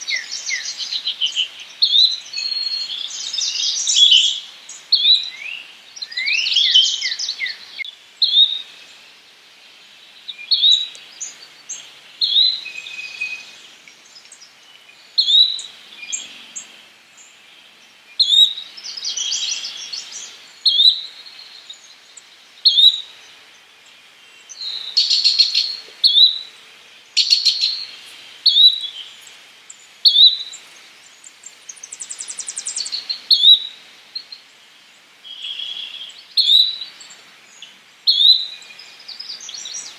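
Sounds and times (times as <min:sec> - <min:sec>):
birds chirping: 0:10.1 - 0:39.9.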